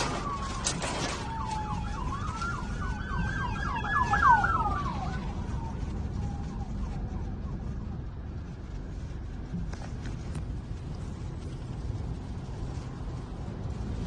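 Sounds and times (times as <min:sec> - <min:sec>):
emergency siren wailing: 0:00.0 - 0:08.2
steady low rumble: 0:00.0 - 0:14.0.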